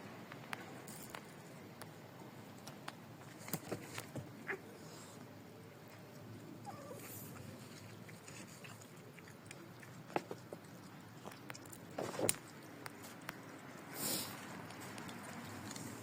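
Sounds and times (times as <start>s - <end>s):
cat chewing food: 5.7s - 16.0s.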